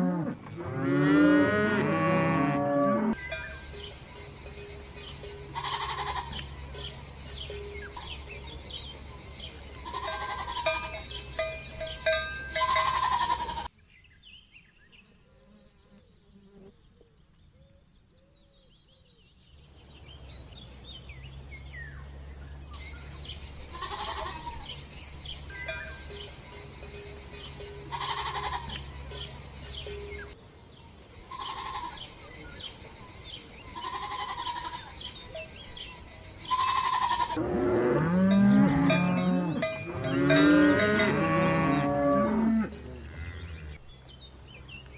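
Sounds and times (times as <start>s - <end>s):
farm animals bleating: 5.4s - 6.6s, 9.8s - 13.7s, 23.6s - 24.8s, 27.8s - 28.9s, 31.3s - 32.1s, 33.7s - 35.1s, 36.5s - 43.8s.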